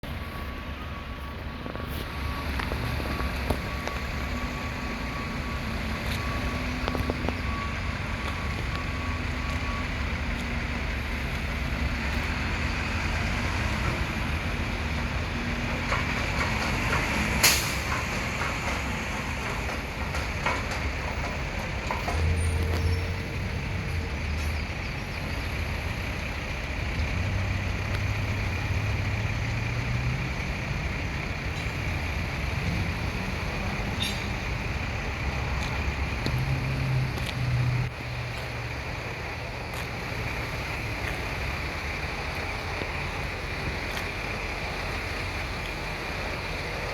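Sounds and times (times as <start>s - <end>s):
reversing beeper: 0.0s - 25.6s
garbage truck diesel engine: 0.0s - 46.9s.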